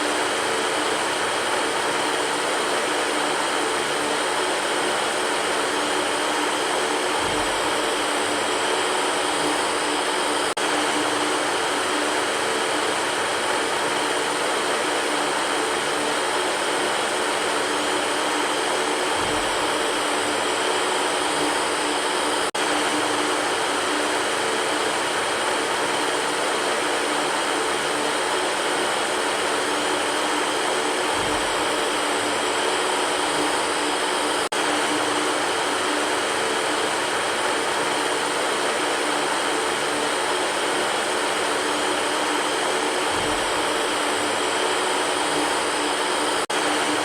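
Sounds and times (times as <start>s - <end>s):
electric fan whooshing: 0.0s - 47.0s
faint motor hum: 0.0s - 47.0s.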